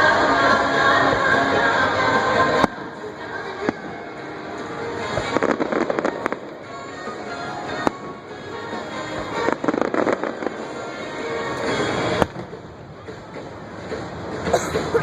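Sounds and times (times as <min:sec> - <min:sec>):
firework bangs: 0:00.0 - 0:13.1
fireworks crackling: 0:00.0 - 0:15.0
show music: 0:00.0 - 0:15.0.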